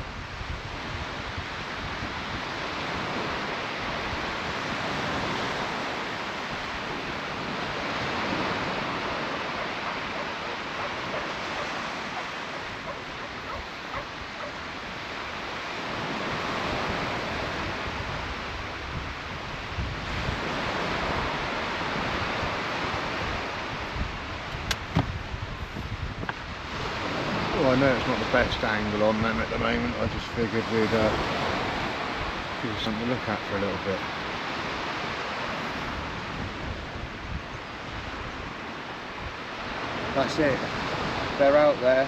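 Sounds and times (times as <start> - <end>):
surf breaking on beach: 0.0 - 42.0
wind rumbling on microphone: 0.0 - 42.0.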